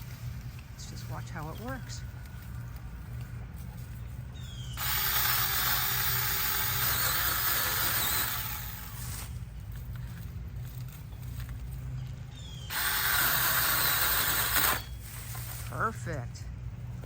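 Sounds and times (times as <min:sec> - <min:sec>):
pole chainsaw cutting: 0:04.8 - 0:09.4, 0:12.7 - 0:15.8.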